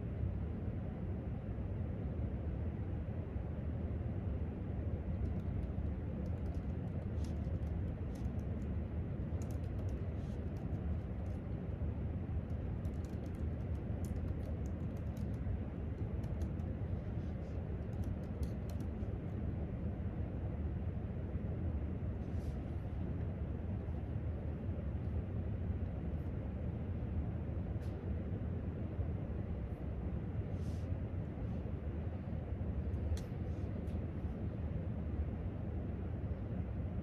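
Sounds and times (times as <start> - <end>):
low rumble of room noise: 0.0 - 37.0
laptop keyboard typing: 5.1 - 8.7, 9.3 - 11.4, 12.5 - 16.7, 17.8 - 19.0.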